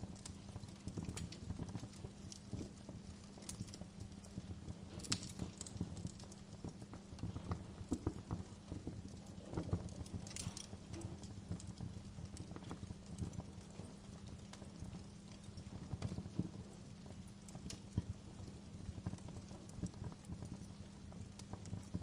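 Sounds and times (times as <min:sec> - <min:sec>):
low rumble of flames: 0:00.0 - 0:22.0
wood fire crackling and popping: 0:00.0 - 0:22.0.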